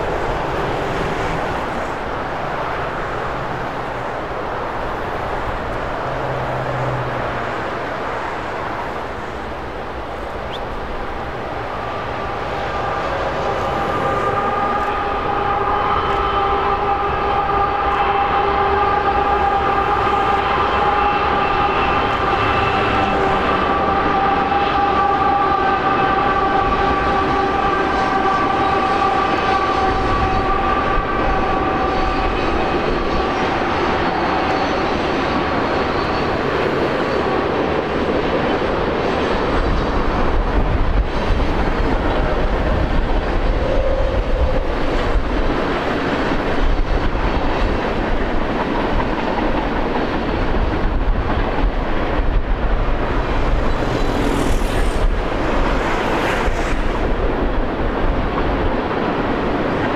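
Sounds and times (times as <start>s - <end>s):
freight train cars rumbling on rails: 0.0s - 59.9s
high-pitched wheel squeal: 12.0s - 37.3s.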